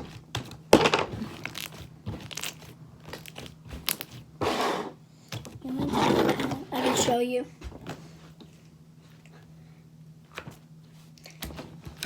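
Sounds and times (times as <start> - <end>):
slime squishing by hand: 0.0 - 4.6.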